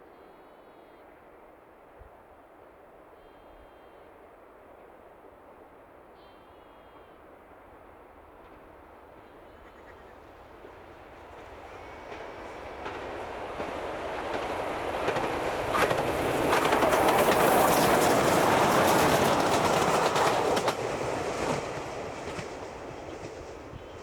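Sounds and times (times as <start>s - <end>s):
locomotives passing: 9.6s - 24.0s
wheels clicking over rail joints: 10.6s - 24.0s.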